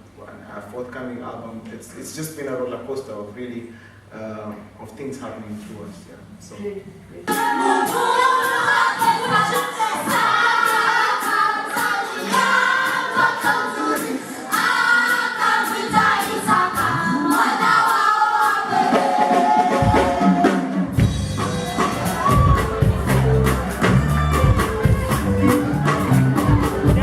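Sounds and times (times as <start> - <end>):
group of voices singing: 7.3 - 24.4
steady beat: 7.3 - 27.0
deep bass: 21.0 - 27.0.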